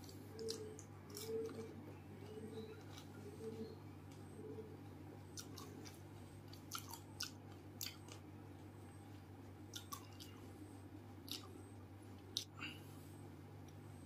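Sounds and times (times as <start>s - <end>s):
person chewing crunchy food: 0.0s - 3.7s, 5.2s - 8.3s, 9.7s - 10.6s.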